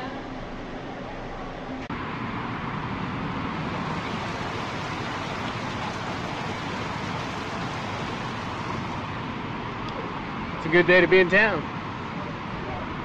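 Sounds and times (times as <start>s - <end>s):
road traffic rushing: 2.0s - 10.6s.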